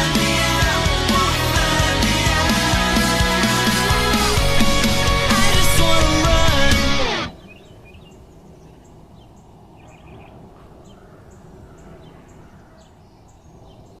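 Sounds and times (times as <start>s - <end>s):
birds chirping: 0.0s - 14.0s
steady low rumble: 0.5s - 7.3s.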